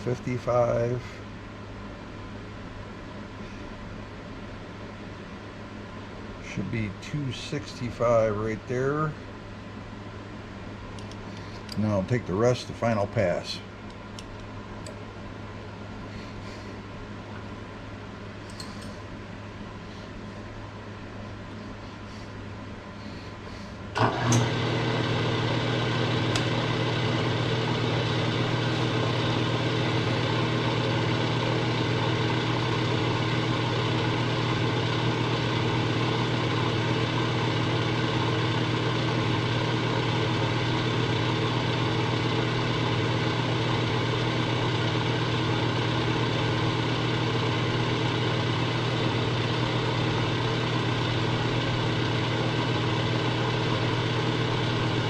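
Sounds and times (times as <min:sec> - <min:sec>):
machine tool humming: 0:23.9 - 0:55.0.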